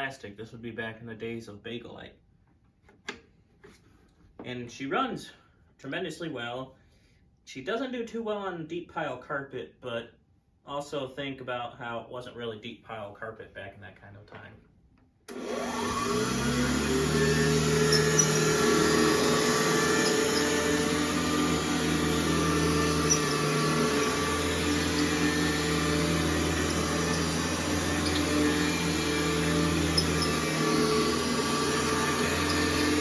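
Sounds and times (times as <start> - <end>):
vacuum cleaner motor: 15.3 - 33.0.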